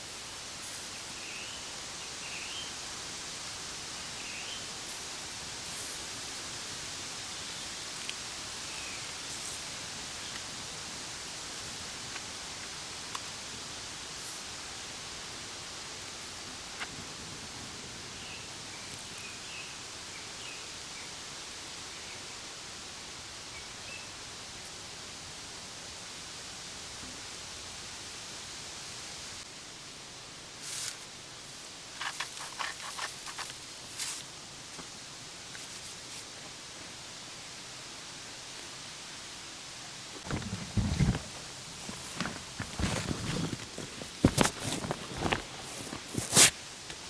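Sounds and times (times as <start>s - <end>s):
campfire crackling: 40.1s - 47.0s.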